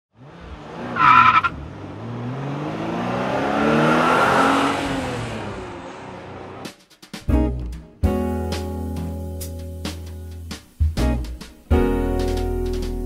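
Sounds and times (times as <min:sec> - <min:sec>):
car engine revving passing by: 0:00.2 - 0:06.8.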